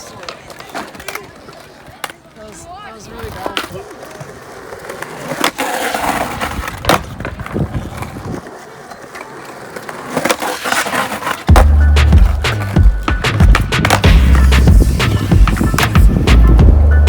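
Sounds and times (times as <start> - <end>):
skateboard clacking on ground: 0.0 - 17.0
skateboard wheels rolling on concrete: 0.0 - 17.0
music with heavy bass beat: 11.5 - 17.0.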